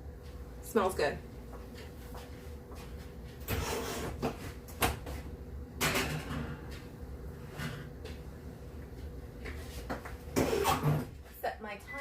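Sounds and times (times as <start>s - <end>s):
oven door and rack scraping: 3.4s - 4.6s, 5.8s - 6.8s, 7.4s - 7.9s, 10.4s - 11.2s.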